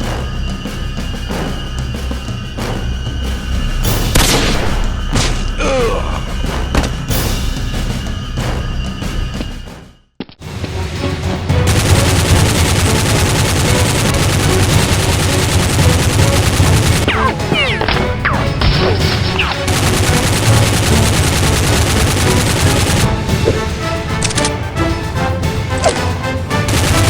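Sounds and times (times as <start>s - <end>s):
background music: 0.0s - 27.0s
rapid gunfire: 11.6s - 24.6s, 25.8s - 27.0s.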